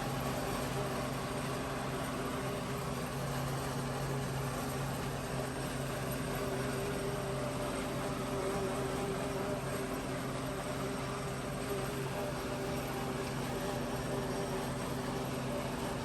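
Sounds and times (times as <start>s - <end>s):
tractor and forage chopper drone: 0.0s - 16.0s.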